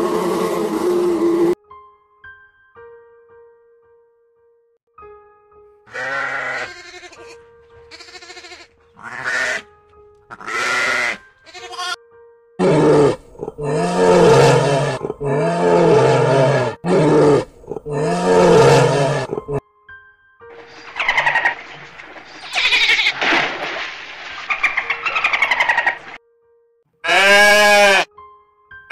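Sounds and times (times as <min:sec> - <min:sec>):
soft background music: 0:01.4 - 0:28.9
drawn-out animal calls: 0:05.9 - 0:09.6, 0:10.3 - 0:12.0, 0:20.6 - 0:23.2, 0:24.0 - 0:26.2, 0:27.0 - 0:28.1.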